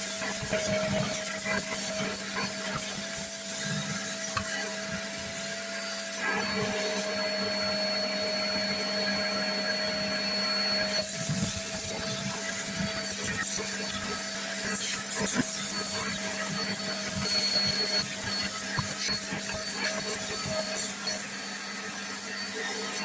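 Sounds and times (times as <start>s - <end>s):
spot washer suction motor humming: 0.0s - 23.0s.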